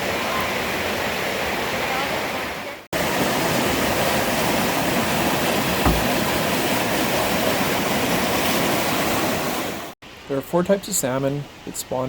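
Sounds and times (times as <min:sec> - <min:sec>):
creek water rushing: 0:00.0 - 0:12.0
low thump: 0:05.8 - 0:06.3.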